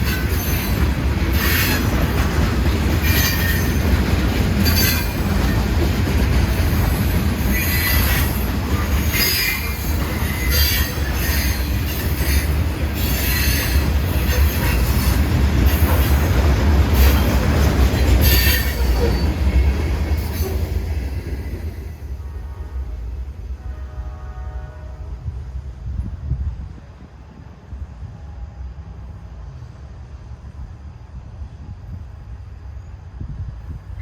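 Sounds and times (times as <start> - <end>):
train wheels squealing: 0.0 - 2.0, 3.0 - 5.9, 6.5 - 21.8
railroad cars rumbling: 0.0 - 34.0.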